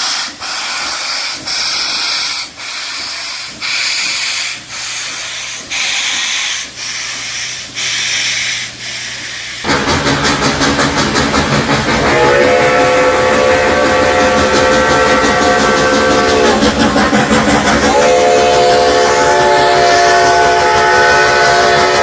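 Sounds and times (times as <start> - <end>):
steam locomotive chuffing: 0.0 - 22.0
steam whistle: 11.9 - 16.8, 17.8 - 22.0.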